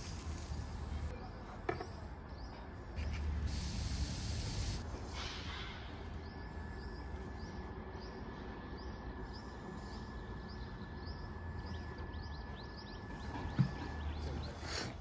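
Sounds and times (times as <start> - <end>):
bird chirping: 6.1 - 14.9.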